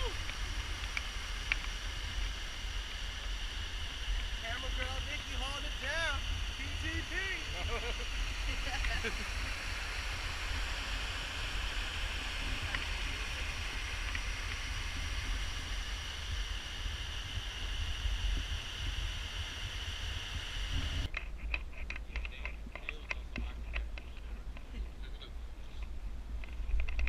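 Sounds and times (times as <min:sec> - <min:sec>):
steady rushing noise: 0:00.0 - 0:27.0
wind rumble on microphone: 0:08.3 - 0:27.0.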